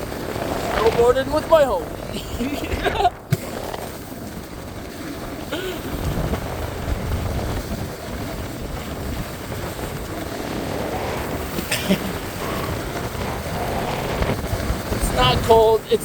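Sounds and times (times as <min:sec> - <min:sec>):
wind buffeting the microphone: 0:00.0 - 0:16.0.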